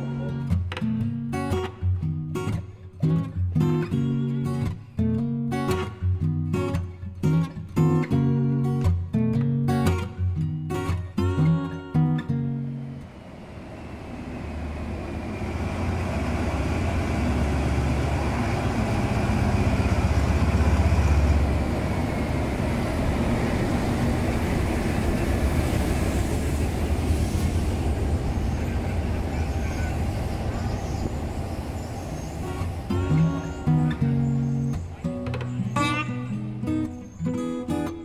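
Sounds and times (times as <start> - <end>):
diesel locomotive engine drone: 12.1 - 37.2
train wheels rumbling on rails: 13.0 - 35.6.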